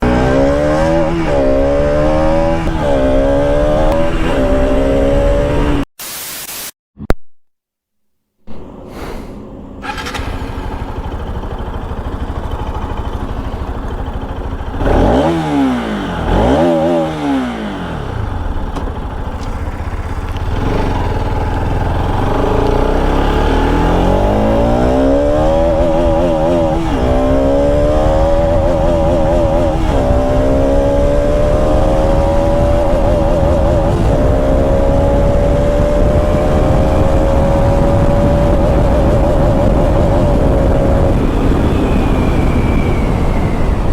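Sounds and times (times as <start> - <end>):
motorcycle accelerating: 0.0 - 5.9, 8.6 - 43.9
motorcycle engine revving: 0.0 - 5.9, 8.6 - 43.9
motorcycle engine idling: 9.4 - 15.2, 18.0 - 24.0.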